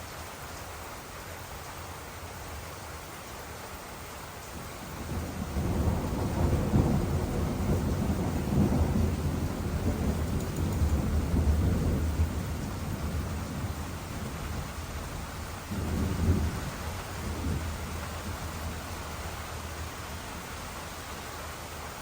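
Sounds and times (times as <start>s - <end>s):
rain hissing: 0.0s - 22.0s
thunder rumbling: 4.9s - 20.8s.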